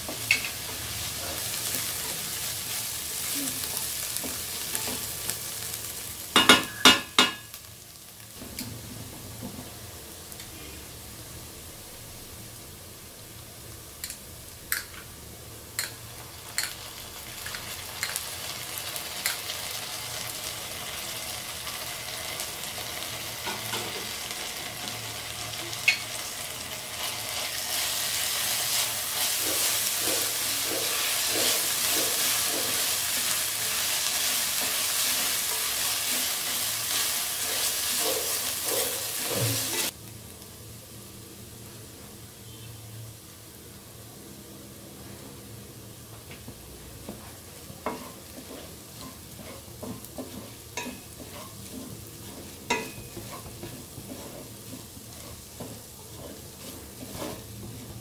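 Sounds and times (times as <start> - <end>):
onions sizzling in oil: 0.0 - 58.0
spatula scraping a steel pot: 47.9 - 58.0.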